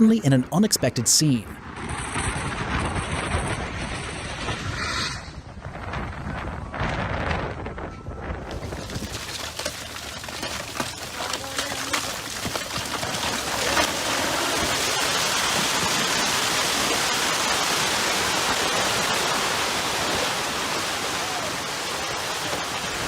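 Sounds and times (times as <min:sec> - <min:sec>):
heavy rain pouring: 0:08.5 - 0:23.0.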